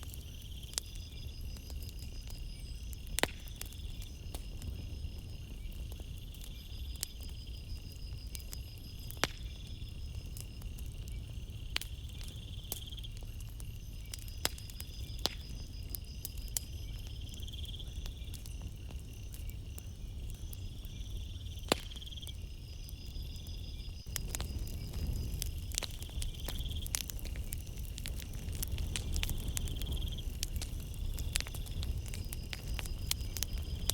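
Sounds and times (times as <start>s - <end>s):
campfire crackling and popping: 0.0s - 33.9s
crickets chirping: 0.0s - 33.9s.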